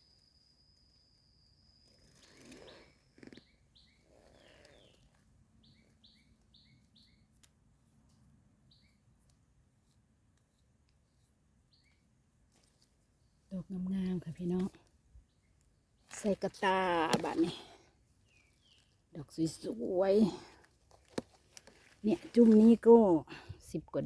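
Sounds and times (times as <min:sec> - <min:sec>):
faint small bird chirps: 0:00.0 - 0:07.5, 0:08.6 - 0:09.1, 0:11.0 - 0:14.5, 0:18.2 - 0:20.0
soft rustles: 0:20.4 - 0:23.0.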